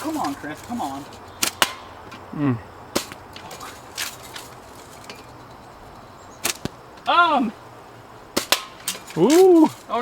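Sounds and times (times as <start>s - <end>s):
bb gun and slingshot cracks: 1.4s - 1.9s, 6.4s - 6.8s, 8.4s - 9.8s.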